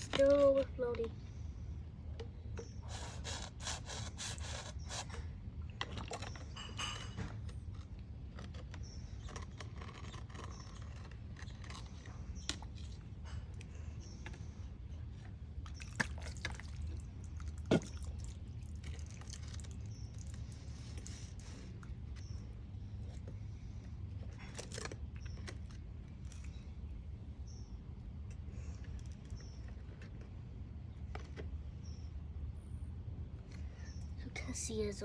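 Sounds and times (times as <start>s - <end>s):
steady low hum: 0.0s - 35.0s
scraping and small clicks: 4.5s - 26.9s, 28.2s - 32.0s.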